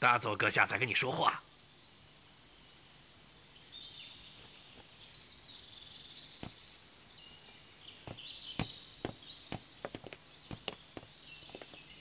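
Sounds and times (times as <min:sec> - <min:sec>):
birds chirping: 0:00.0 - 0:12.0
sharp taps: 0:08.0 - 0:11.8.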